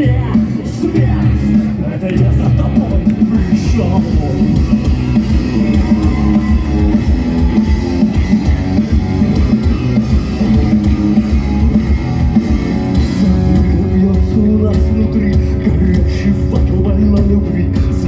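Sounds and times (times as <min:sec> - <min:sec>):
instrumental rock band: 0:00.0 - 0:18.0.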